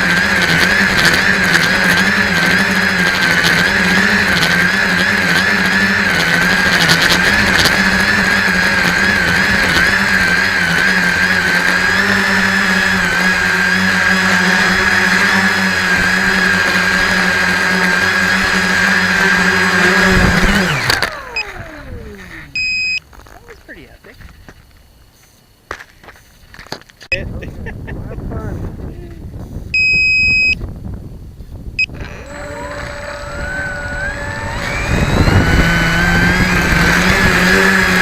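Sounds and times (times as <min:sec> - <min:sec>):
electric motors and propellers whining: 0:00.0 - 0:23.8, 0:29.8 - 0:30.7, 0:31.6 - 0:38.0
short electronic beep: 0:22.6 - 0:23.0, 0:29.8 - 0:30.6.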